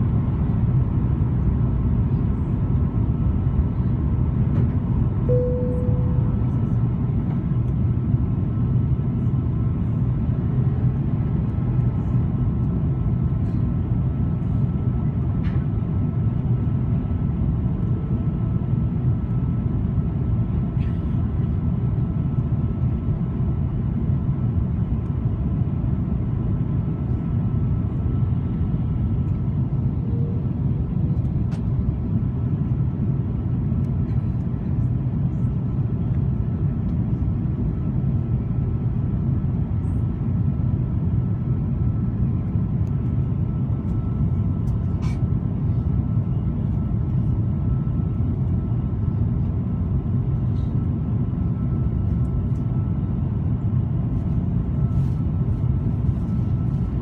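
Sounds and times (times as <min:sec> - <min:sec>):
airliner cabin rumble: 0:00.0 - 0:57.0
faint steady hum: 0:05.2 - 0:07.3.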